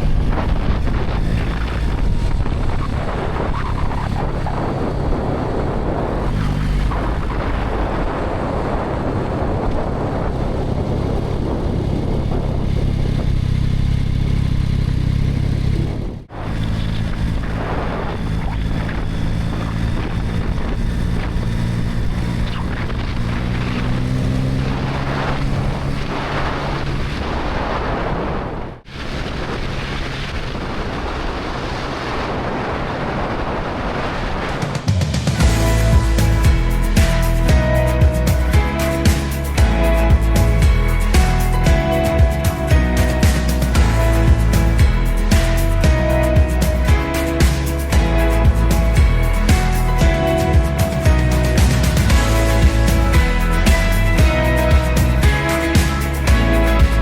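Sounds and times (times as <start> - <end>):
motorcycle engine running: 0.0 - 27.2, 34.7 - 57.0
wind rushing over microphone: 0.0 - 57.0.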